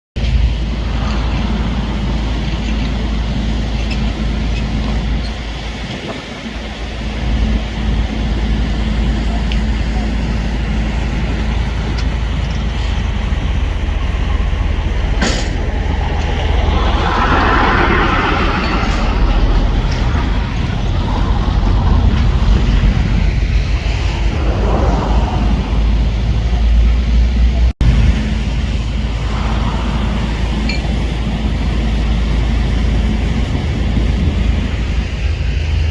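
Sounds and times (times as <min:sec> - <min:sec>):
diesel trucks rumbling: 0:00.2 - 0:35.9
heavy vehicle engine humming: 0:00.2 - 0:35.9
wind buffeting microphone: 0:00.2 - 0:35.9.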